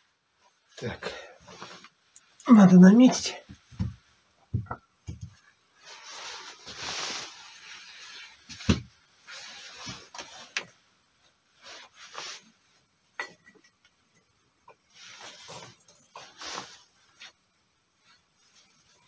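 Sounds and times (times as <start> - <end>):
scraping and rubbing: 5.8 - 10.6, 14.9 - 17.4.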